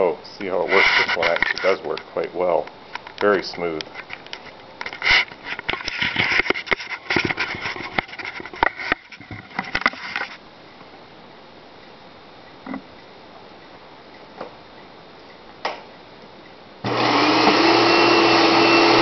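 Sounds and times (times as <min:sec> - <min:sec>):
handling clicks knocks and rustles: 0:01.0 - 0:10.4.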